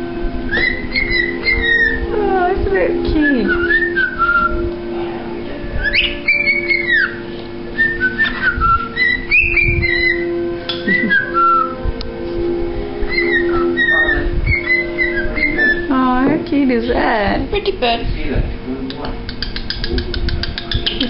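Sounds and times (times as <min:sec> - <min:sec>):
steady low hum: 0:00.0 - 0:21.0
cockatiel whistling: 0:00.4 - 0:02.1, 0:03.2 - 0:04.7, 0:05.8 - 0:11.8, 0:13.0 - 0:15.9, 0:19.3 - 0:21.0.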